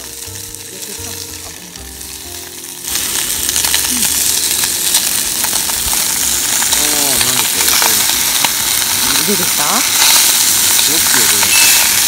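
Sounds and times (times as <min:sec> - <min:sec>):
food sizzling in a pot: 0:00.0 - 0:12.0
plastic bag squeaks: 0:11.1 - 0:12.0.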